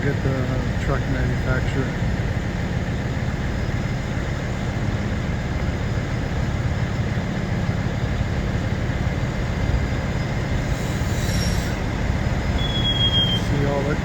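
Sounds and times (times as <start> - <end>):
truck engines idling: 0.0 - 14.0.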